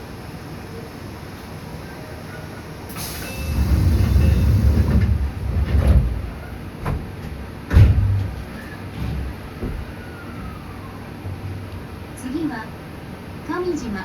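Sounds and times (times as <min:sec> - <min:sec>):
train motors and wheels rumbling: 0:00.0 - 0:14.0
wheels clacking over rail joints: 0:03.0 - 0:12.2.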